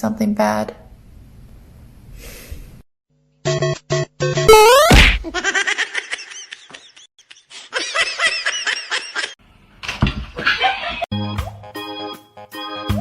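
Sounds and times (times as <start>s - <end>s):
person laughing: 4.9s - 9.4s.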